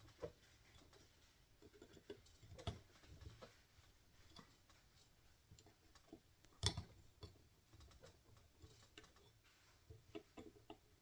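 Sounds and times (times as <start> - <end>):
small parts clicking and tapping: 0.0 - 11.0.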